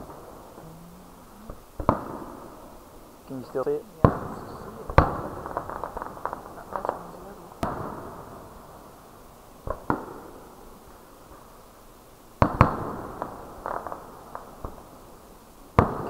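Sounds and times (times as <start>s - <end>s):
fireworks bangs: 0.0s - 16.0s
fireworks crackling: 0.0s - 16.0s.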